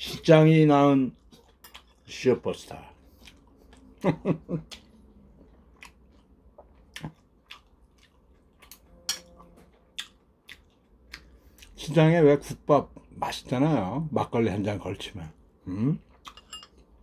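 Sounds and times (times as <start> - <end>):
chewing and wet mouth smacks: 4.6 - 9.3, 9.9 - 11.8.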